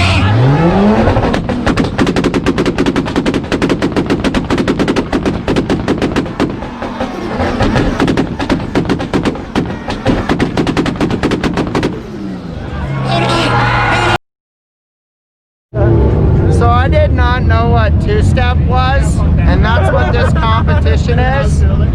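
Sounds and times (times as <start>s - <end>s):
exhaust pops and bangs: 0.7s - 12.6s.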